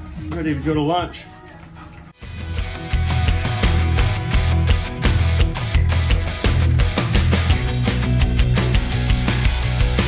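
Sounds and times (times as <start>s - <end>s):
rock music: 2.2s - 10.0s.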